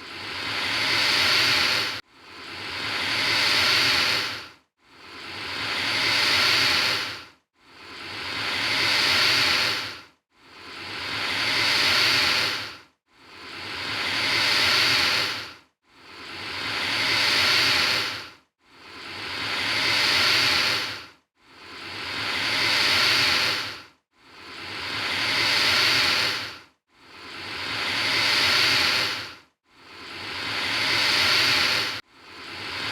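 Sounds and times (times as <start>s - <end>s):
alligator hissing: 0.0s - 2.0s, 2.6s - 4.4s, 5.1s - 7.2s, 7.8s - 10.0s, 10.7s - 12.7s, 13.4s - 15.5s, 16.2s - 18.2s, 18.9s - 21.0s, 21.7s - 23.8s, 24.4s - 26.6s, 27.2s - 32.9s.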